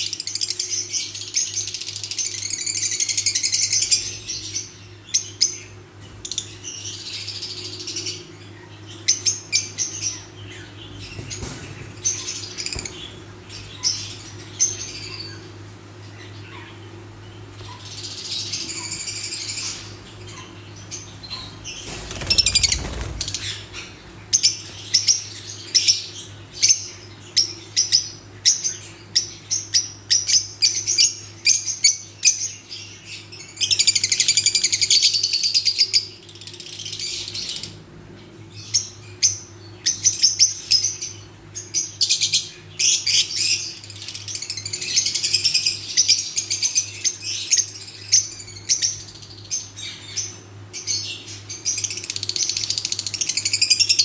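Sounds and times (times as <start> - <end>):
steady low hum: 0.0 - 35.1
lovebirds chirping: 0.0 - 54.0.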